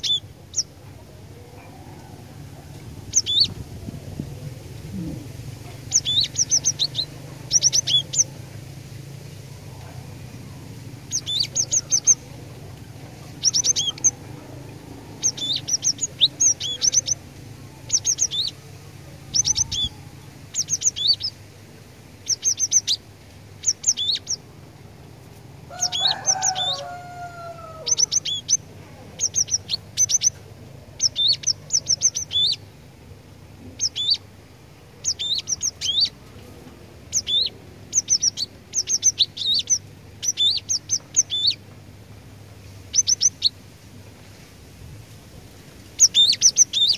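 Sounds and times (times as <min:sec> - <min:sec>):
lower gliding bird call: 0:00.0 - 0:00.8, 0:01.6 - 0:08.6, 0:09.5 - 0:21.4, 0:23.6 - 0:24.5, 0:25.7 - 0:32.7, 0:33.7 - 0:34.3, 0:35.0 - 0:36.5, 0:37.1 - 0:41.6, 0:42.9 - 0:43.6, 0:46.0 - 0:46.9.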